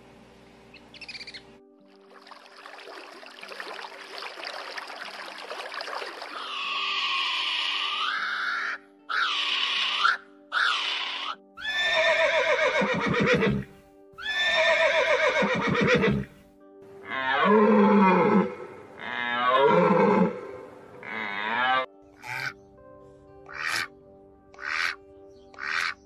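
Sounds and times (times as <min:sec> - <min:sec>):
background music with held tones: 0:00.0 - 0:05.3, 0:06.4 - 0:26.0
horse whinnying: 0:06.4 - 0:16.4, 0:17.0 - 0:22.5.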